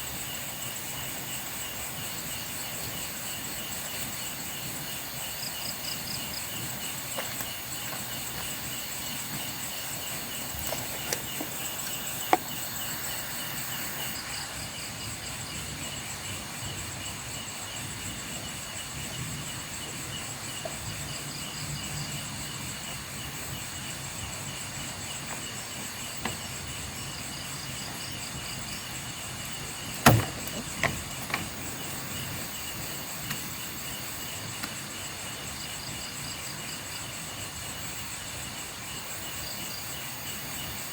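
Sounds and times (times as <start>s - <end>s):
crickets and insects trilling: 0.0s - 40.9s
sharp knocks: 29.9s - 31.7s.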